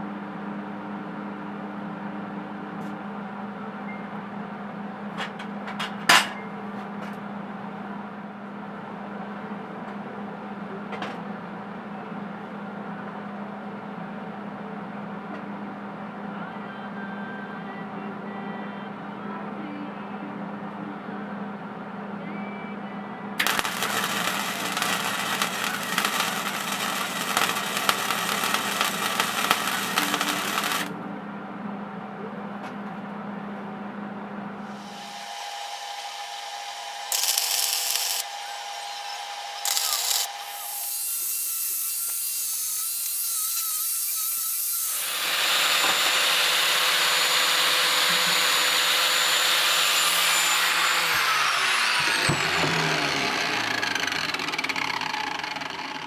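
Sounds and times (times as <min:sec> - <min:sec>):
welder crackling: 0:23.4 - 0:31.0, 0:34.8 - 0:48.2.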